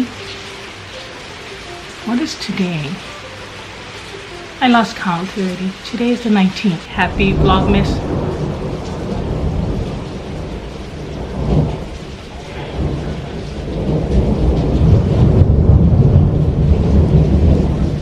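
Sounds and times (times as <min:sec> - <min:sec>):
heavy rain: 0:00.0 - 0:18.0
thunder rumbling: 0:06.7 - 0:18.0.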